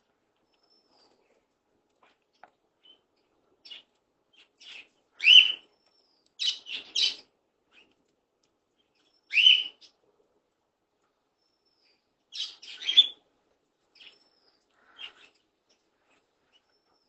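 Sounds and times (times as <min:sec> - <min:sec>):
parrot chirping calls: 0:04.6 - 0:05.6, 0:06.4 - 0:07.2, 0:09.2 - 0:09.9.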